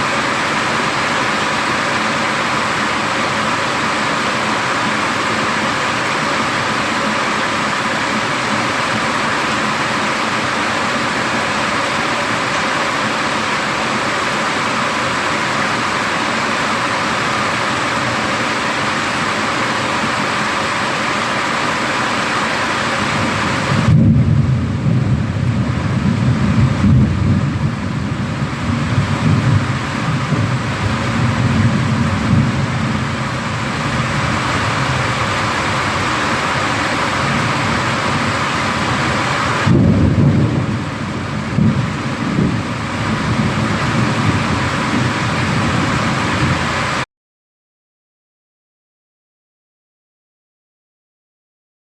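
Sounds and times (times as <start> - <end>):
rain hissing: 0.0 - 47.0
rolling thunder: 23.1 - 47.0.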